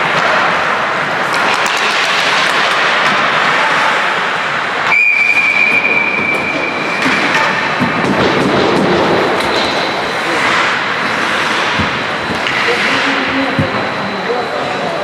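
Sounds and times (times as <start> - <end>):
ice rink noise: 0.0 - 15.0
sharp clacks: 1.2 - 3.7
long high whistle blast: 4.9 - 7.0.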